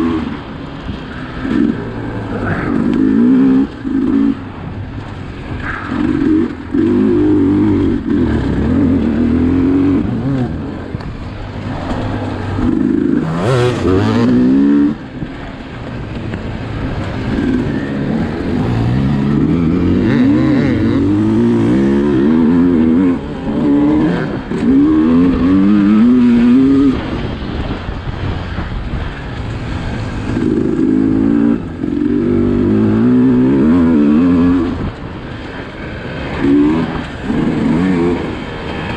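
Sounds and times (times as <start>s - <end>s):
two-stroke engine revving hard: 5.8s - 11.0s, 11.7s - 15.1s, 16.8s - 27.6s, 30.0s - 38.9s.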